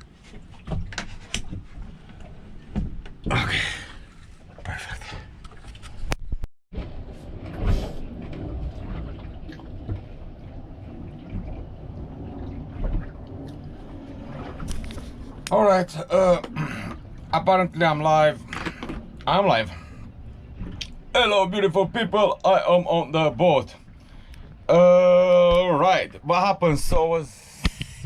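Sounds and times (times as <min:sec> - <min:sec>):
low background rumble: 0:06.8 - 0:28.0.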